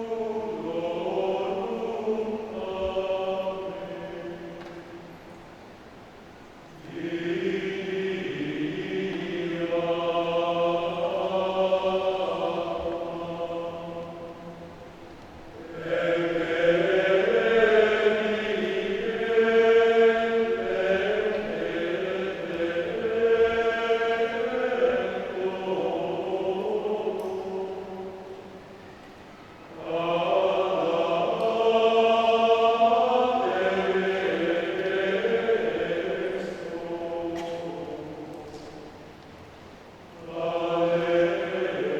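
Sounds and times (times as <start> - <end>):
men's choir singing sustained chords: 0.0 - 41.9.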